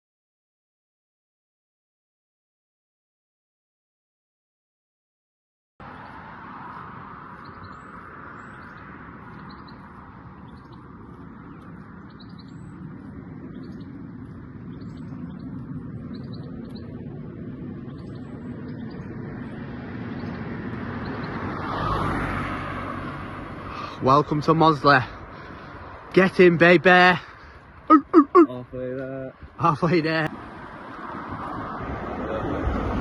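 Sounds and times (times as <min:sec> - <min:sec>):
small birds chirping: 0:05.8 - 0:30.3
road traffic hum: 0:05.8 - 0:33.0.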